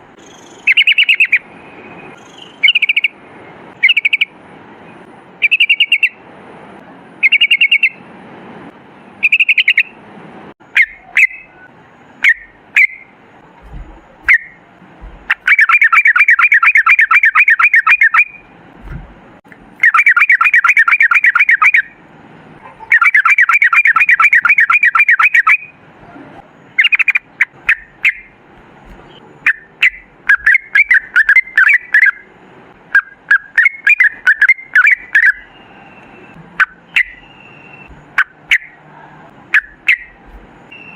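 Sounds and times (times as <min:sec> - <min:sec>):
bird singing loudly: 0:00.2 - 0:03.2, 0:03.8 - 0:04.4, 0:05.4 - 0:06.2, 0:07.2 - 0:08.0, 0:09.2 - 0:10.0, 0:10.6 - 0:13.2, 0:14.2 - 0:14.6, 0:15.3 - 0:18.5, 0:19.8 - 0:22.0, 0:22.8 - 0:25.8, 0:26.7 - 0:28.4, 0:29.4 - 0:32.3, 0:33.0 - 0:38.8, 0:39.5 - 0:40.9.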